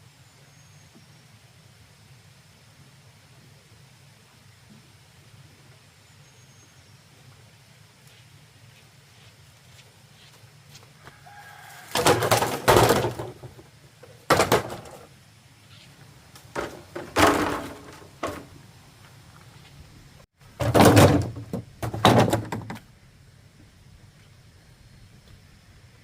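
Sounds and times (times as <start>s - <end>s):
heavy knocks and thunks: 11.9s - 13.6s, 14.3s - 15.0s, 16.5s - 18.5s, 20.6s - 22.8s.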